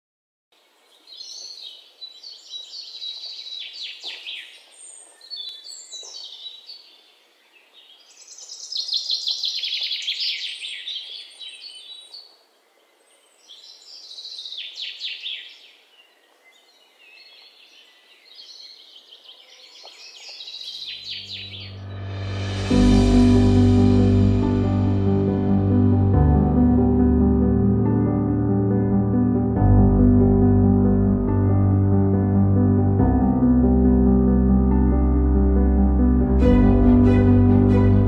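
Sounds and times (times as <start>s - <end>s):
birds singing: 0.6s - 21.8s.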